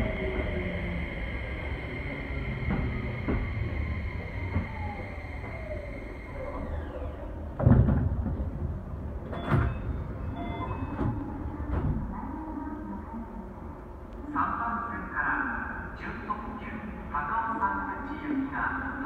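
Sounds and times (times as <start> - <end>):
train motor whine: 0.0 - 7.7
air burst and sliding doors: 0.0 - 8.4
clunks: 2.5 - 10.0.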